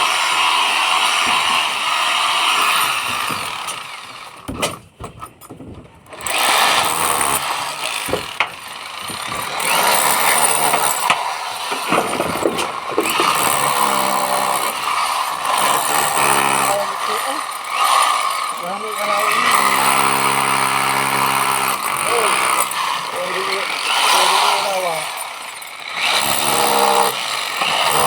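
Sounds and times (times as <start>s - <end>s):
hammer drill rattling: 0.0s - 28.0s
knocks: 8.0s - 9.5s, 10.6s - 13.7s.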